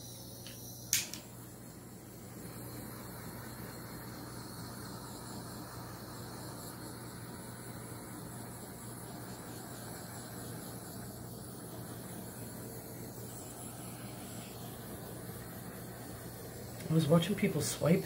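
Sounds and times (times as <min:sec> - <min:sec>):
heat gun blowing air: 0:00.0 - 0:18.0
heat gun switch click: 0:00.4 - 0:01.3.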